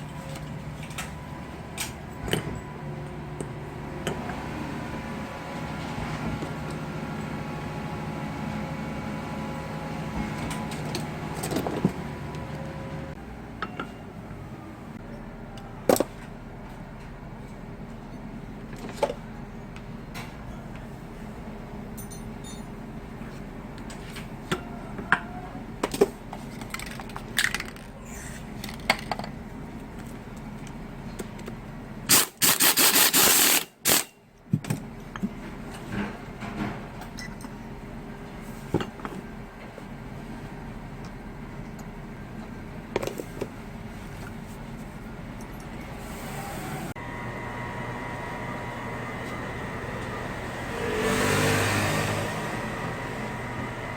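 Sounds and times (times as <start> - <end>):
metal tools clinking: 22.0 - 22.7
steady machine hum: 46.6 - 51.0.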